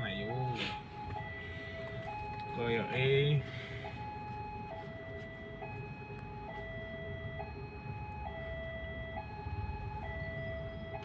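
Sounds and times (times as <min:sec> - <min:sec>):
idling engines rumble: 0:00.0 - 0:11.0.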